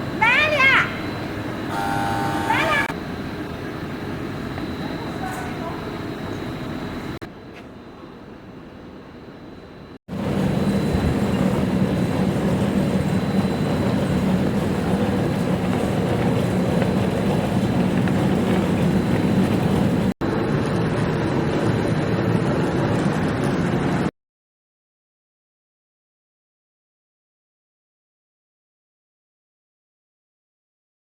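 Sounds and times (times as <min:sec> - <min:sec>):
loud machine hum: 0:00.0 - 0:07.3, 0:10.1 - 0:24.1.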